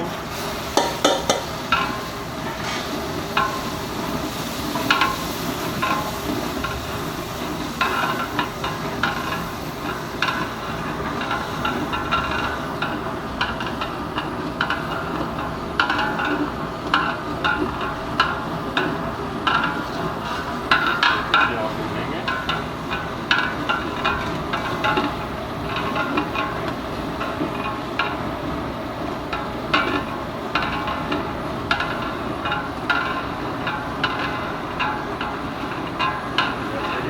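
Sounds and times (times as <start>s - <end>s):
food sizzling: 0.0s - 37.0s
metal ladle scraping pot: 0.3s - 6.8s
ladle clinking against pot: 0.8s - 3.7s.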